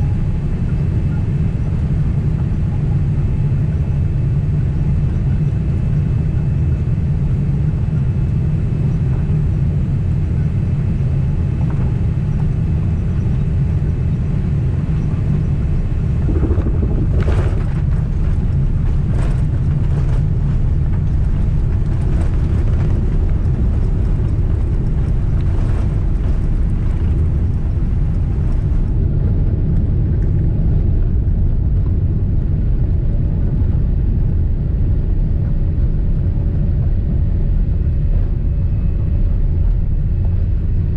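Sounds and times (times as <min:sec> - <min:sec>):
airliner cabin rumble: 0:00.0 - 0:40.9.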